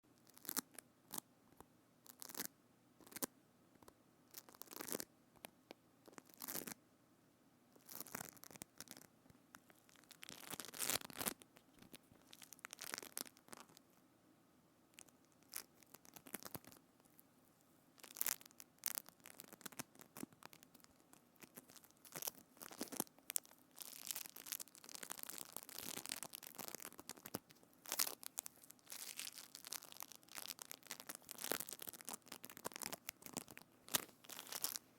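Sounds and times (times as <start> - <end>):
sticky crackling handling: 18.0 - 34.9.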